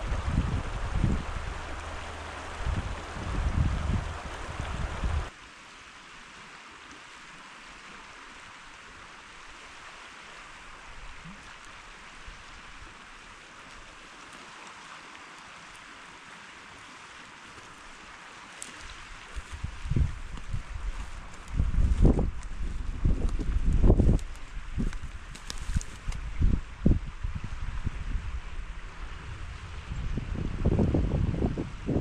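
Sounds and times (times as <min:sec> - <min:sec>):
river water rushing: 0:00.0 - 0:27.7.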